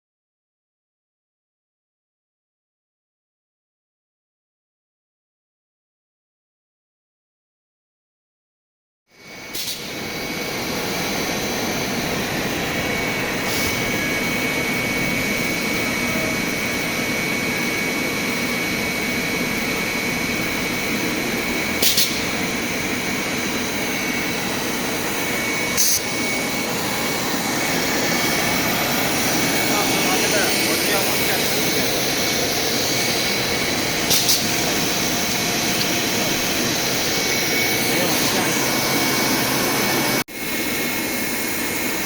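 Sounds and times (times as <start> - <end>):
steady machine noise: 9.1 - 42.0
high whine: 9.2 - 42.0.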